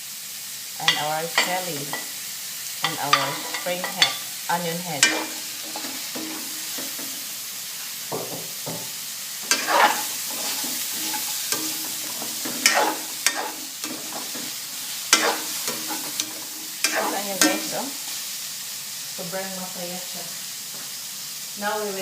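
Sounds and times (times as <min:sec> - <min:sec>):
vegetables sizzling in oil: 0:00.0 - 0:22.0
stirring and scraping in a wok: 0:02.8 - 0:18.4.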